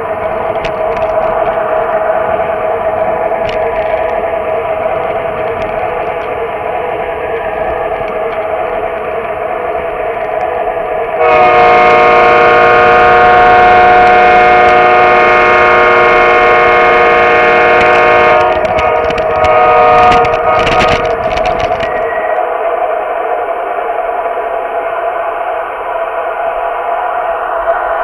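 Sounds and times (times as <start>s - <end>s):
model locomotive humming: 0.0s - 28.0s
electronic train horn: 11.1s - 22.6s
clatter: 17.8s - 22.1s.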